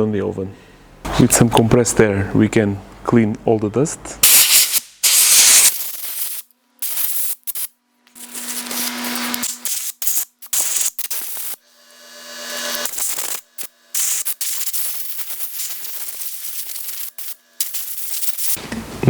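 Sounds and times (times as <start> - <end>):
compressed air blow gun hissing: 4.2 - 11.6, 12.3 - 18.6.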